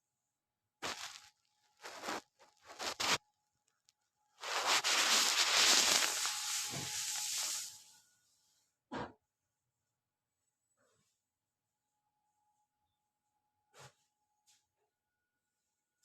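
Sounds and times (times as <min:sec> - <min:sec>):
electric coffee grinder: 0:04.4 - 0:07.8.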